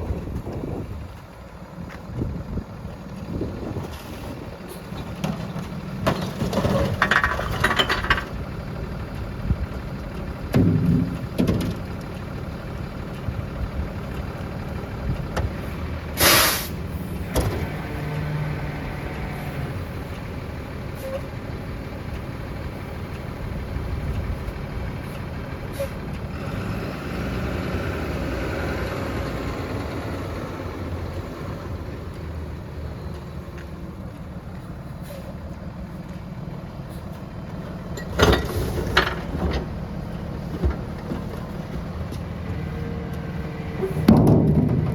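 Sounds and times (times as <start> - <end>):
garbage truck running: 0.0 - 44.9
air brake hiss: 16.2 - 16.8.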